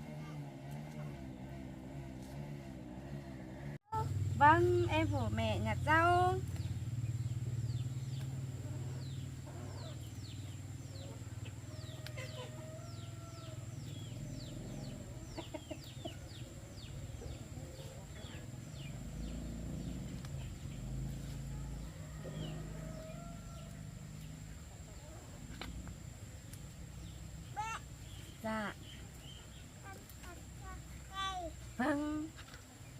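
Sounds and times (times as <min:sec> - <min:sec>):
chicks peeping: 0:06.5 - 0:20.9
chickens clucking: 0:08.2 - 0:13.3, 0:13.9 - 0:21.0.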